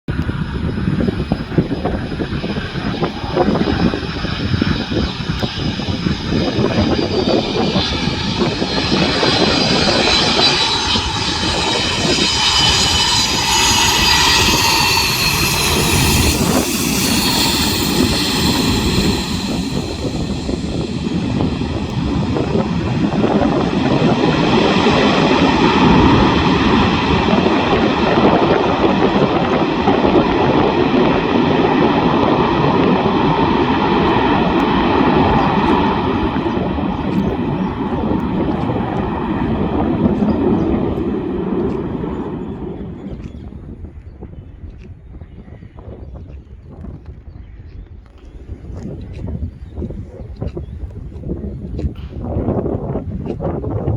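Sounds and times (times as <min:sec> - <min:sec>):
jet engines rushing: 0:00.1 - 0:44.0
jet engine whine: 0:00.1 - 0:44.4, 0:48.1 - 0:53.9
faint high whine: 0:02.6 - 0:23.8.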